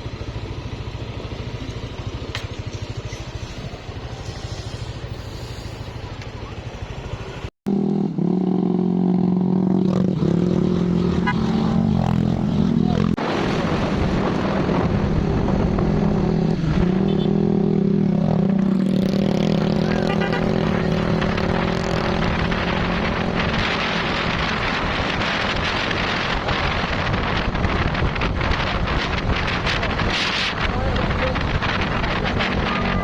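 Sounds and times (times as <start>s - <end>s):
wind noise on microphone: 9.8s - 19.6s, 20.6s - 33.0s.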